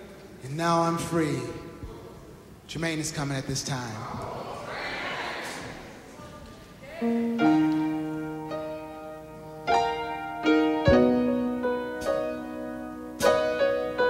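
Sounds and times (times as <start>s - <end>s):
piano gospel chords: 6.9s - 14.0s.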